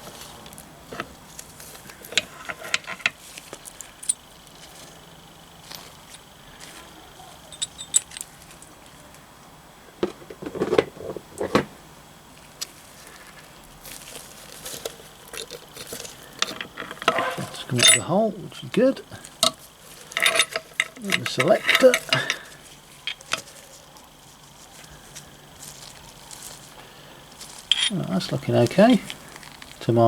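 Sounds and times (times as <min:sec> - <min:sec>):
steel gearbox parts clinking: 0:07.5 - 0:08.7, 0:15.3 - 0:18.2, 0:19.4 - 0:23.5, 0:27.6 - 0:29.1.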